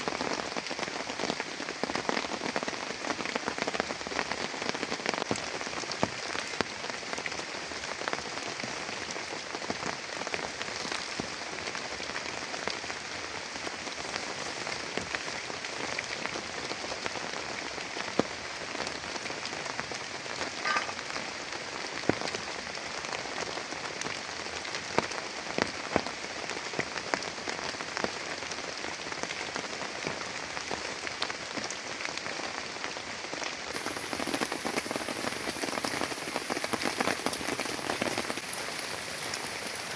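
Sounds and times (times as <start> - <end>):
large raindrops tapping: 0.1 - 16.8, 17.4 - 28.2, 33.7 - 39.9
heavy rain hiss: 33.7 - 39.9.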